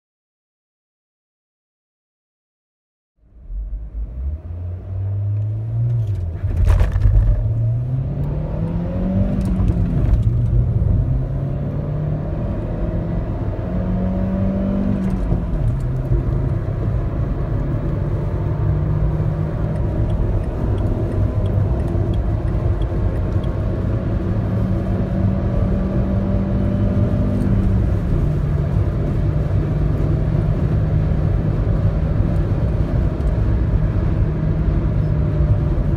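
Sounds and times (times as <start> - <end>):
car engine accelerating: 3.3 - 35.9.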